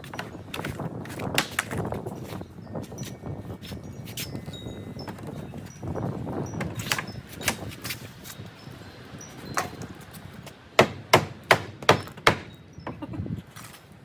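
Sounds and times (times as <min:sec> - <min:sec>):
hammer blows: 0:10.8 - 0:13.0.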